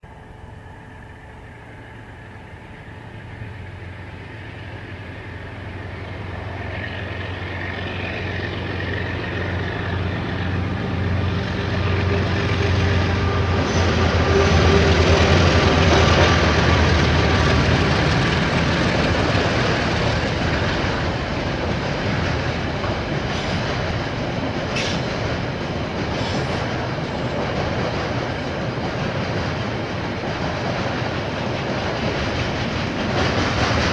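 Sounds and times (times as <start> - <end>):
diesel train passing: 0.0 - 33.9.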